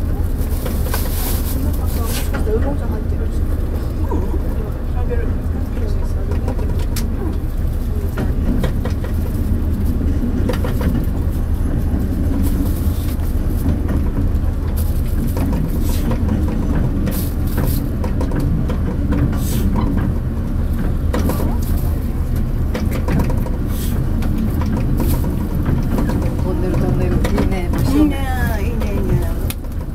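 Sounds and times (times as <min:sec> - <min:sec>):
train engine and wheels rumbling: 0:00.0 - 0:29.9
sharp clicks and rattles: 0:06.2 - 0:29.9.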